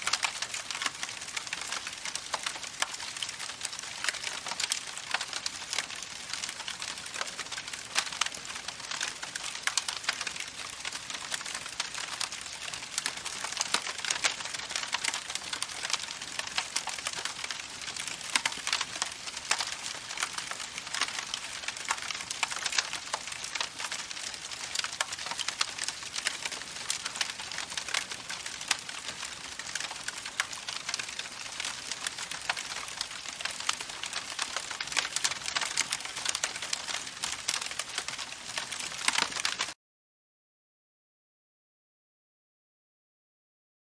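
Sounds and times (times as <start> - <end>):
campfire crackling: 0.0 - 39.8.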